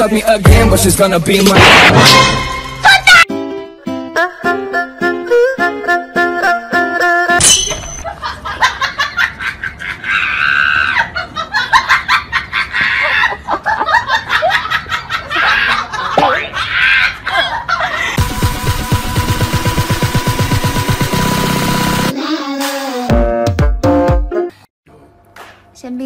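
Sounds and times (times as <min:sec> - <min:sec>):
music: 0:00.0 - 0:07.4, 0:18.2 - 0:24.7
person laughing with shrieks: 0:09.4 - 0:13.8, 0:15.2 - 0:18.2.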